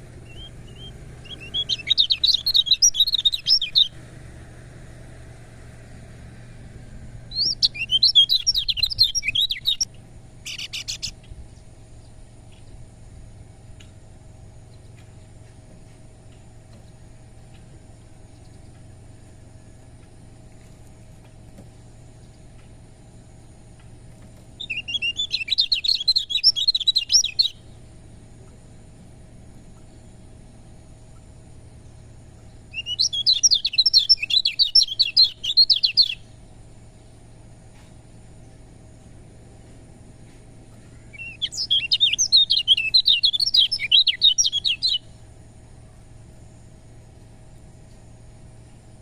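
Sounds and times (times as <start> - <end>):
bird twittering song: 0.0 - 4.1, 7.2 - 13.0, 13.8 - 39.1, 39.9 - 49.0
faint steady hum: 0.0 - 49.0
bird chattering high chirps: 0.2 - 4.0, 7.3 - 11.3, 24.6 - 27.7, 32.7 - 36.3, 40.9 - 45.0.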